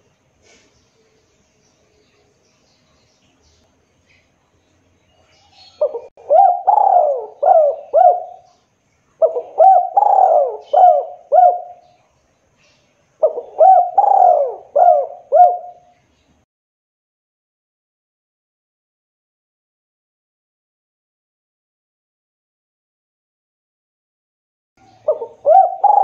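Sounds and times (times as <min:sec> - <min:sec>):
dove cooing: 0:05.5 - 0:08.6, 0:09.2 - 0:12.0, 0:13.2 - 0:15.9, 0:24.8 - 0:26.0.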